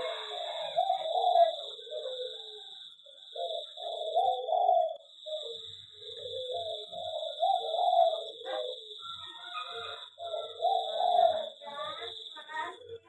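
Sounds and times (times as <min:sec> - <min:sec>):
doves cooing: 0:00.0 - 0:13.0.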